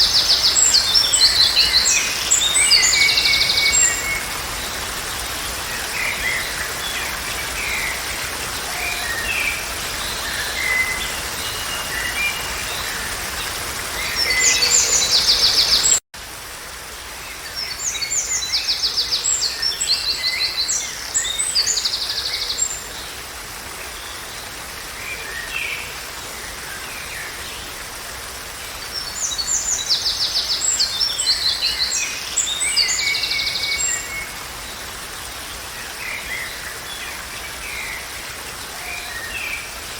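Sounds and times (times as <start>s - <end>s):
background hiss: 0.0s - 12.8s
birds singing and chirping: 0.0s - 16.0s, 28.7s - 39.9s.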